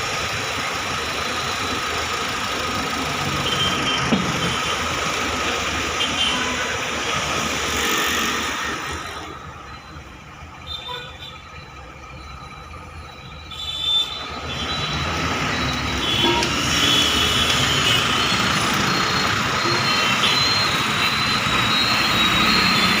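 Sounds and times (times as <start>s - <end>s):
car engine at raised revs: 0.0s - 9.6s, 14.2s - 23.0s.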